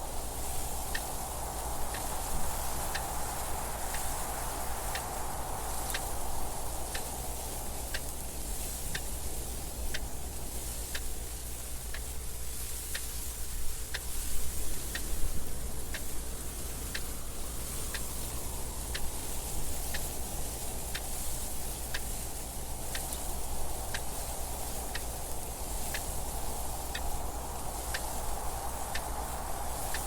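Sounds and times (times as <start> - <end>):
wind noise: 0.0 - 30.0
clock ticking: 2.9 - 3.2, 9.8 - 10.2, 10.8 - 12.2, 12.8 - 13.1, 13.7 - 26.2, 26.8 - 30.0.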